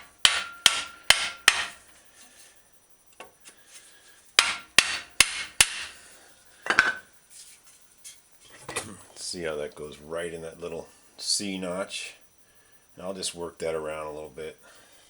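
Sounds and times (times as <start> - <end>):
hammer knocking on wooden block: 0.2 - 1.7.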